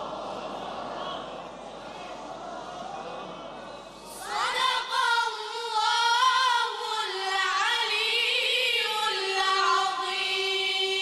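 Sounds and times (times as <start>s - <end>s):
choir singing: 4.1s - 7.2s.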